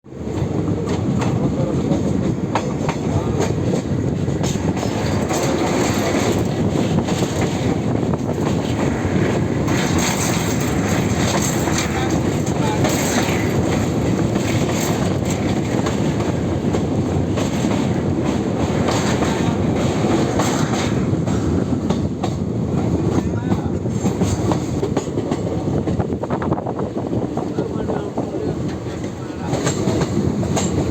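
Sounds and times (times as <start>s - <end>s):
clacks and rattles: 0.4s - 26.6s, 27.2s - 30.9s.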